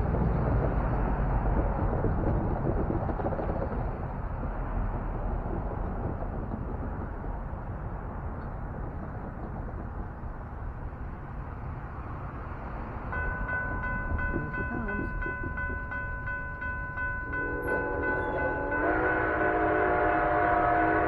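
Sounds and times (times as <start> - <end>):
train horn chord: 17.3 - 21.0.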